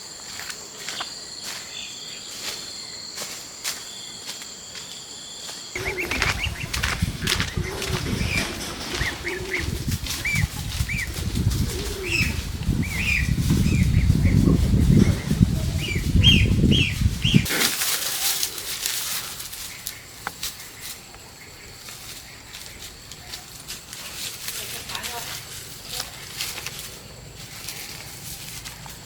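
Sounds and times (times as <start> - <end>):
low cooing calls: 5.8 - 18.9
birds flapping wings: 5.8 - 19.9.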